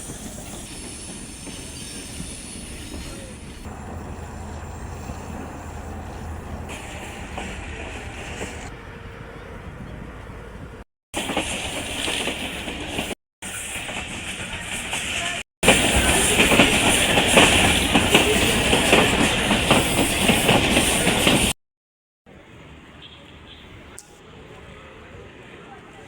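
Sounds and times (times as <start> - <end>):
train wheels clattering on rails: 11.2 - 21.6.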